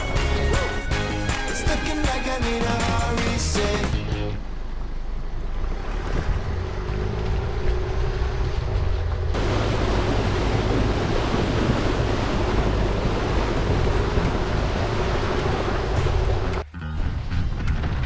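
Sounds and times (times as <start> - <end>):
vehicle engine rumble: 2.6 - 18.0
water rushing: 9.4 - 16.6.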